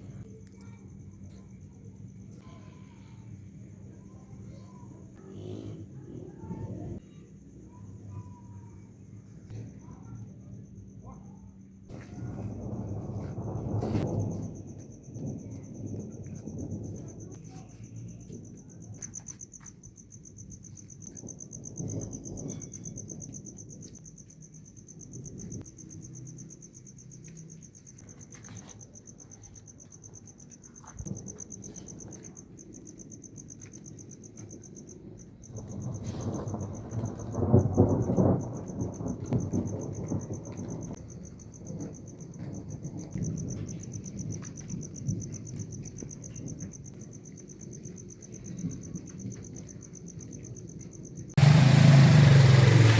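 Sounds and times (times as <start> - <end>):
thunder rumbling: 0.0 - 8.1, 11.9 - 19.6, 20.3 - 28.4, 29.8 - 50.4, 51.3 - 52.9
high insect trill: 0.0 - 52.9
rain: 11.9 - 52.9.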